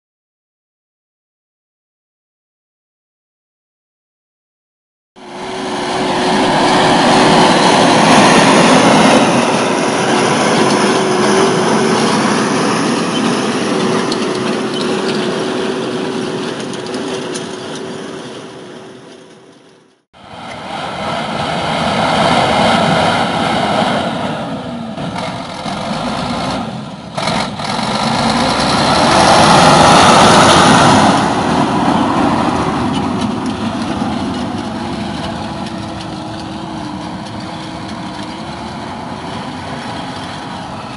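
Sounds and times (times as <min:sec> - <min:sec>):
diesel engine running: 0:05.2 - 0:40.9.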